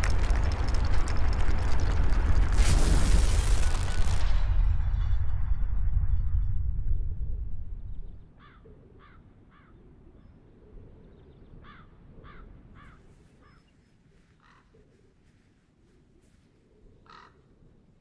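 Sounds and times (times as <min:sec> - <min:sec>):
low rumble: 0:00.0 - 0:08.3
crow cawing: 0:08.4 - 0:09.8, 0:11.6 - 0:13.6, 0:14.4 - 0:14.8, 0:17.0 - 0:17.5.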